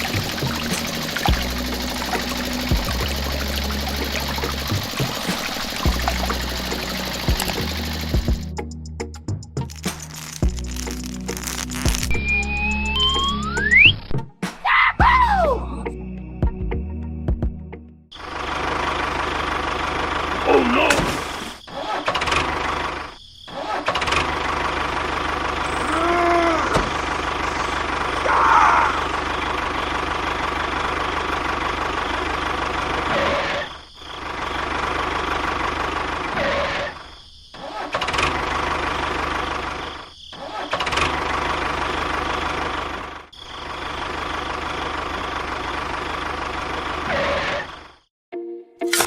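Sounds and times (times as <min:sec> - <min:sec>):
small motor running: 0:00.0 - 0:08.5, 0:10.2 - 0:12.2.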